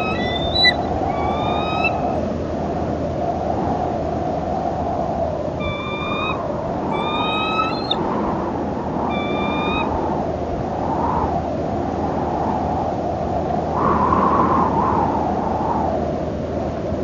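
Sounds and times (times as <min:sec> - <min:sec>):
bird whistling calls: 0:00.0 - 0:02.3, 0:05.6 - 0:08.0, 0:09.1 - 0:09.9
rushing wind: 0:00.0 - 0:17.0.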